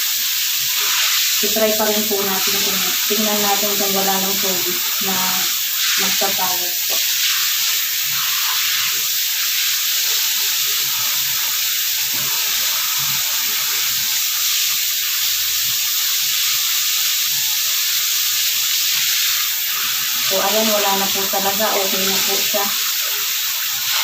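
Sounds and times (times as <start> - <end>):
shower head spraying water: 0.0 - 24.0.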